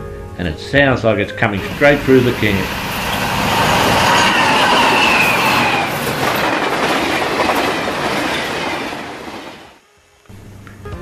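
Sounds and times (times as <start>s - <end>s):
high whine sliding down: 1.6s - 6.7s
train wheels rumbling and rattling: 1.6s - 9.8s.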